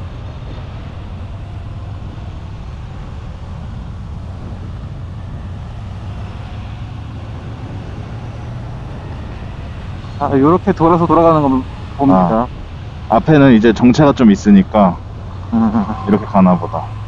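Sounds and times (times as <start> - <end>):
wind noise: 0.0 - 10.2
road noise: 0.0 - 17.0.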